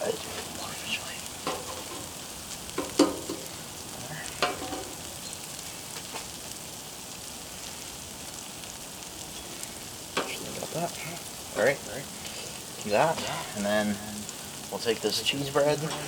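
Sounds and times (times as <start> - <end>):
food sizzling on a griddle: 0.0 - 16.0
utensil clinking on griddle: 1.4 - 3.5, 4.3 - 5.0, 9.3 - 10.6, 15.3 - 16.0.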